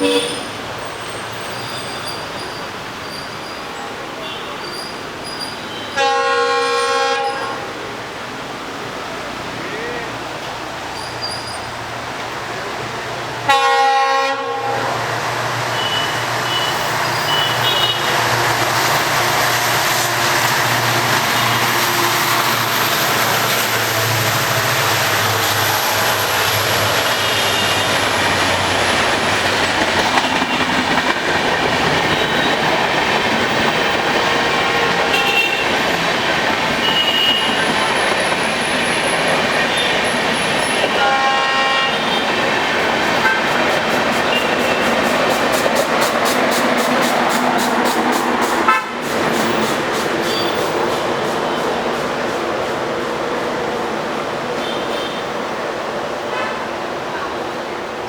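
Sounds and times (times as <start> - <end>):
train horn blast: 0.0 - 0.6, 5.7 - 7.8, 13.5 - 15.2, 15.8 - 18.3, 34.8 - 35.8, 36.8 - 37.7, 40.6 - 42.4, 43.2 - 43.6, 48.6 - 49.1, 54.6 - 55.4
train wheels on rails: 0.0 - 58.0.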